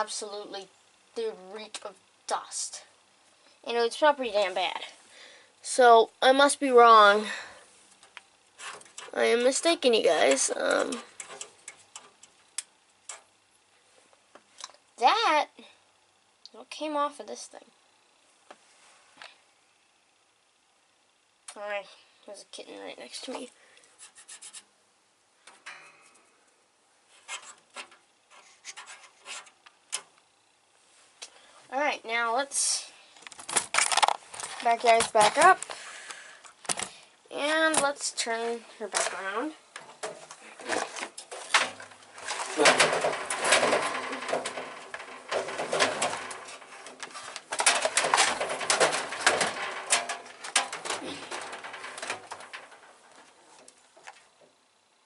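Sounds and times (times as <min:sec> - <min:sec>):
box fan clicking and clattering: 0:07.9 - 0:13.5, 0:25.4 - 0:26.2, 0:27.2 - 0:30.6, 0:33.2 - 0:54.9
scratchy rubbing strokes: 0:24.0 - 0:24.7, 0:28.3 - 0:29.6.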